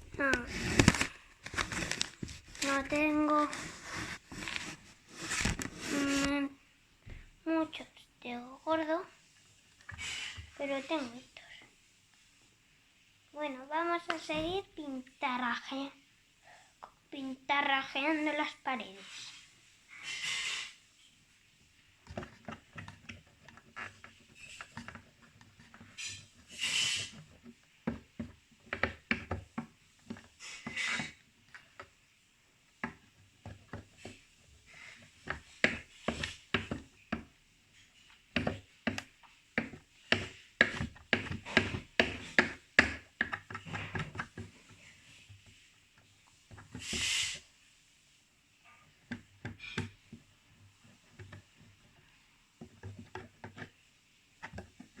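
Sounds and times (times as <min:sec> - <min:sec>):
marker scraping and tapping on wood: 0:00.0 - 0:06.5, 0:21.6 - 0:32.1, 0:32.8 - 0:47.8, 0:48.8 - 0:55.0
short hissing bursts: 0:19.9 - 0:20.9, 0:46.7 - 0:47.6.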